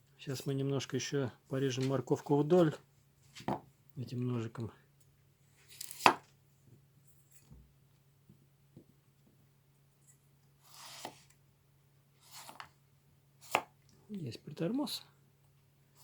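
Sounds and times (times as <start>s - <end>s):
knife slicing rasps: 10.7s - 11.2s.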